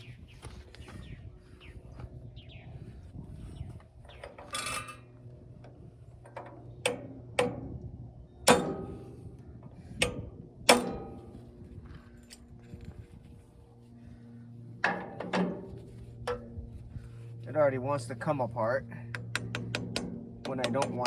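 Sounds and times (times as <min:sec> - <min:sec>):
metal tool scraping: 0:04.2 - 0:05.1
sharp metallic clanks: 0:08.5 - 0:09.2, 0:10.0 - 0:11.4.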